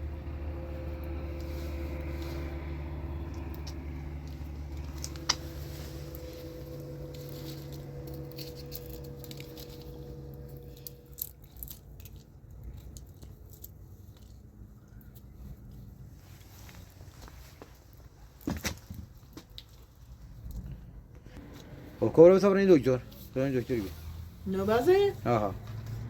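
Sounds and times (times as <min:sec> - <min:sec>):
vehicle engine humming: 0:00.0 - 0:18.4, 0:20.6 - 0:26.0.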